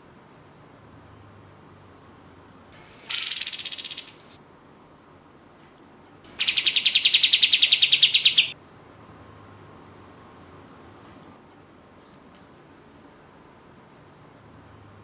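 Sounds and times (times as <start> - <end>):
bird high trill: 2.8 - 4.3, 6.4 - 8.6.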